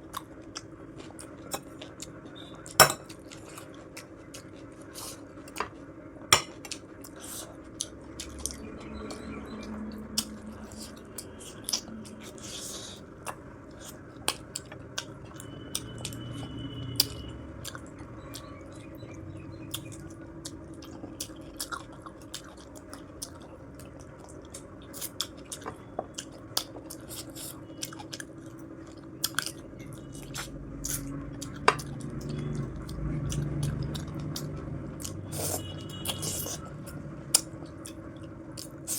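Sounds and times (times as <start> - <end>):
chewing and biting food: 0.0 - 38.9
tableware clinking on plate: 2.8 - 3.1.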